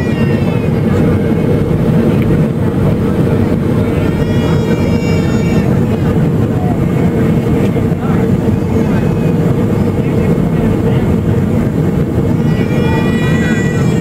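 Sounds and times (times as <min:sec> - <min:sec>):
aircraft engines and airflow rumble: 0:00.0 - 0:14.0
faint voices: 0:00.0 - 0:14.0
steady hum: 0:00.0 - 0:14.0.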